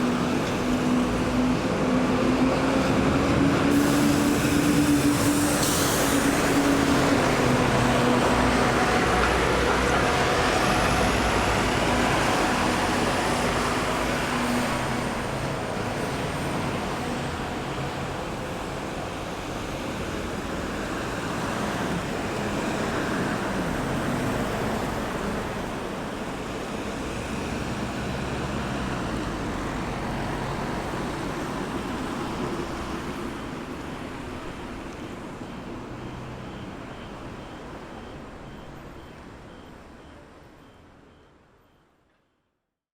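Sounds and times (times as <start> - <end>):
vehicles passing by: 6.3 - 38.4.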